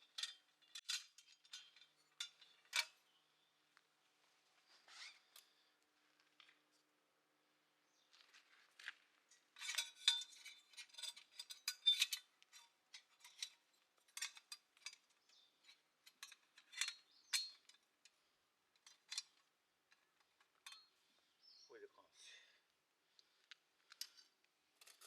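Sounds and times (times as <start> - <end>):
metal clinking and clattering: 0.0 - 3.0, 9.6 - 17.9, 24.0 - 25.0.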